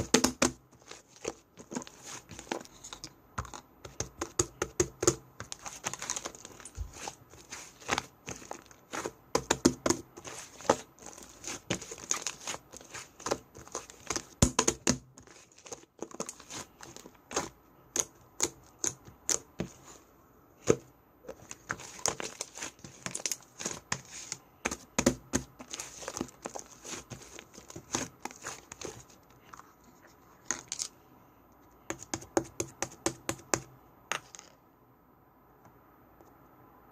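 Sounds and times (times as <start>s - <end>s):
slime popping and crackling: 3.4s - 19.5s.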